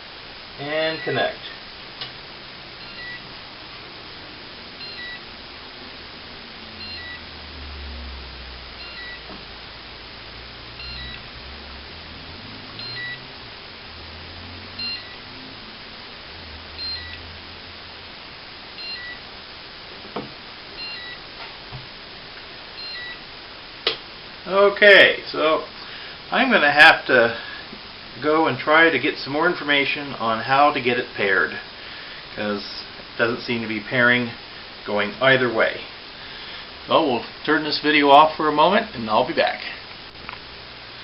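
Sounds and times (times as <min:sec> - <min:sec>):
short high beep: 0:10.8 - 0:11.2, 0:12.8 - 0:13.2, 0:14.8 - 0:15.2.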